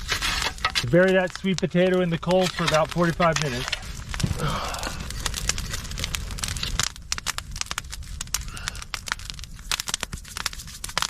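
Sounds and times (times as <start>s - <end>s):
fire coals crackling and popping: 0.0s - 11.0s
low rumble: 3.7s - 9.6s.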